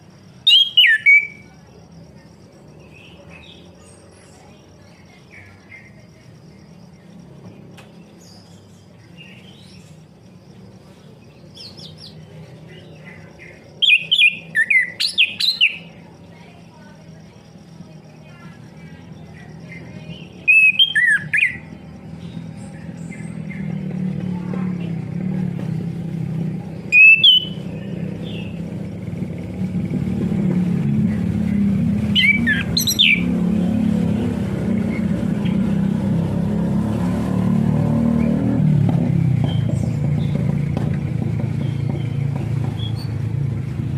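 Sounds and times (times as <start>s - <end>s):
thrush singing: 11.2s - 40.6s
bird whistling sliding notes: 26.9s - 27.8s, 32.0s - 33.4s.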